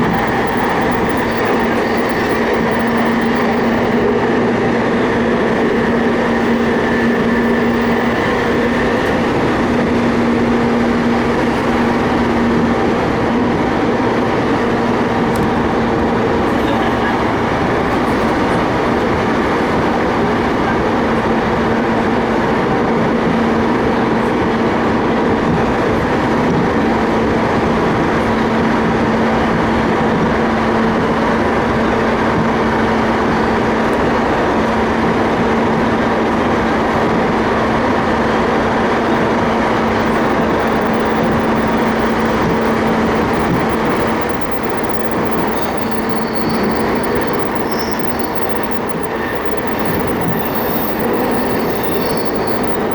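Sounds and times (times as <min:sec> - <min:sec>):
low motor hum: 0:00.0 - 0:20.7, 0:38.9 - 0:52.9
high wheel squeal: 0:00.0 - 0:22.8, 0:38.7 - 0:52.9
train wheels rumbling on rail: 0:00.0 - 0:52.9.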